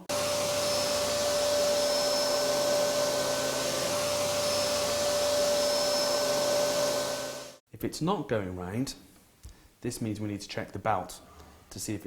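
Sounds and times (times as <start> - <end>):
upright vacuum cleaner running: 0.0 - 7.6.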